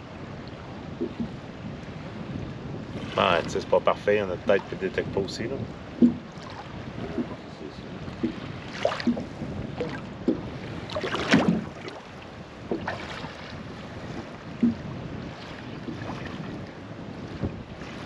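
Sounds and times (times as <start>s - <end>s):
water noise around a boat: 0.0s - 18.0s
wind: 0.0s - 18.0s
knocks in a boat: 1.0s - 1.4s, 5.9s - 7.5s, 8.1s - 12.0s, 12.6s - 13.4s, 14.0s - 16.6s.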